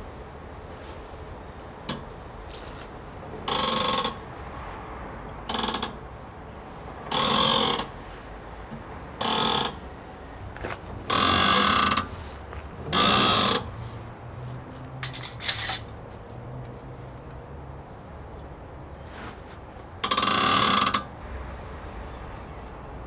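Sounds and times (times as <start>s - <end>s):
strut bearings squeaking and grinding: 3.5s - 4.3s, 7.0s - 8.1s, 8.7s - 13.8s, 15.0s - 15.9s, 20.0s - 21.2s.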